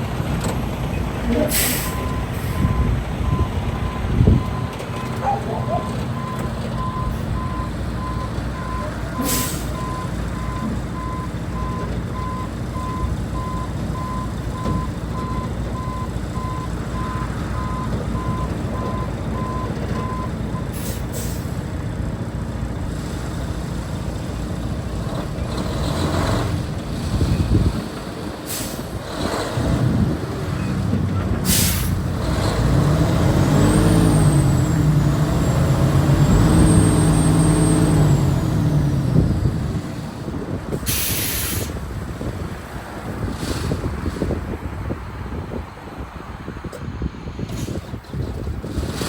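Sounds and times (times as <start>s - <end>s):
diesel truck engine running: 0.0s - 49.0s
air brake hisses: 1.5s - 2.6s, 9.2s - 9.8s, 28.5s - 28.9s, 31.5s - 32.0s, 40.9s - 41.8s.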